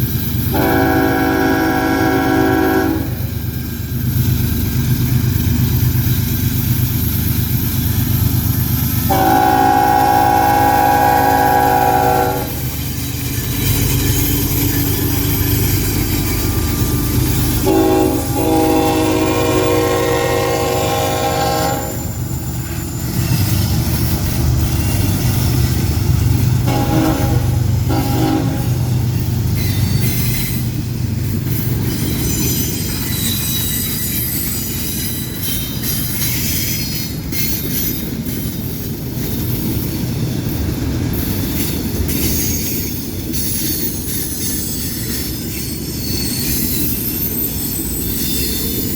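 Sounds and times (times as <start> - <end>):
locomotive horn blasts: 0.5 - 3.2, 9.1 - 12.6, 17.6 - 22.2, 26.6 - 28.9.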